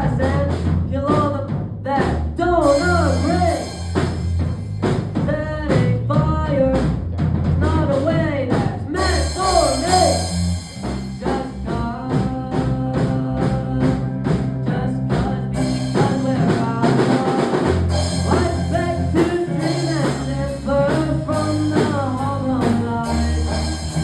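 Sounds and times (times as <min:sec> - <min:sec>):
person singing: 0:00.0 - 0:03.8, 0:05.2 - 0:06.8, 0:07.6 - 0:10.3, 0:11.2 - 0:24.0
drum kit beat: 0:00.0 - 0:24.0
sustained bass notes: 0:00.0 - 0:24.0
rock band playing: 0:02.0 - 0:24.0.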